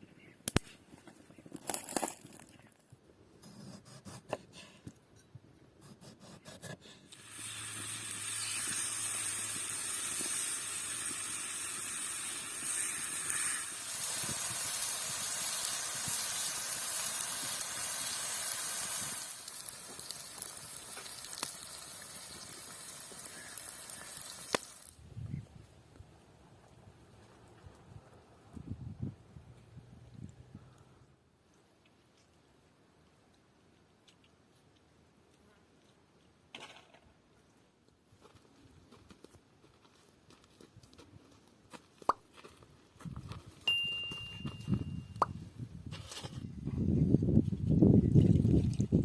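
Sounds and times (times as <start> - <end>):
food sizzling in a hot pan: 7.2 - 24.9.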